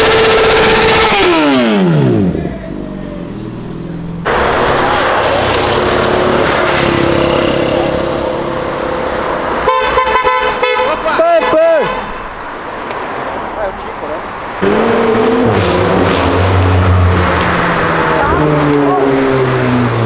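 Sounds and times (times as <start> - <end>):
motorcycle engine revving: 0.0 - 9.5, 14.6 - 20.0
car engine and exhaust: 0.0 - 20.0
cars driving past: 1.4 - 20.0.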